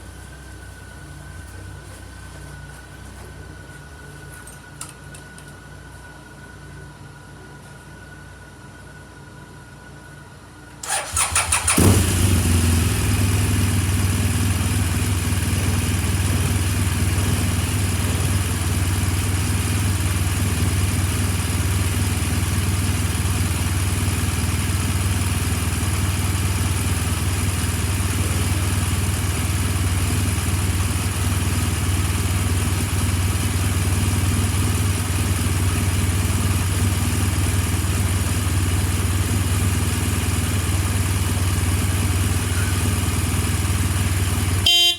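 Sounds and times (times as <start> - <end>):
motorcycle electric starter cranking: 10.8 - 12.5
motorcycle engine idling: 10.8 - 44.9.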